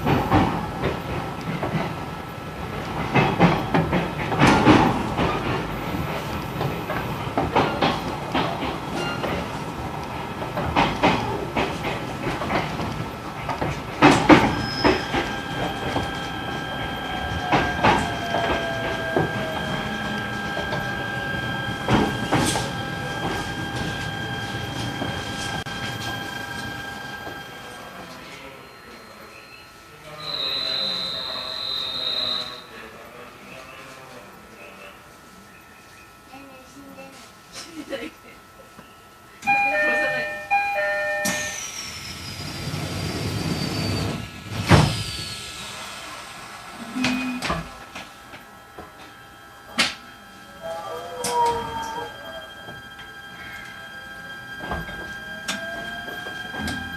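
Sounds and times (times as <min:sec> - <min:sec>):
wheels clacking over rail joints: 0:00.0 - 0:26.3
train running noise: 0:00.0 - 0:29.3, 0:30.1 - 0:56.9
train motor whine: 0:02.9 - 0:29.3, 0:30.1 - 0:32.6, 0:39.4 - 0:56.9
air hiss with falling whistle: 0:30.1 - 0:32.7, 0:43.3 - 0:46.2.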